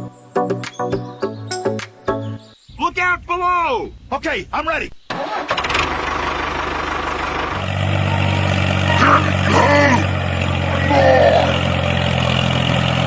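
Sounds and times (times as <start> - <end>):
engine running: 5.2 - 13.0.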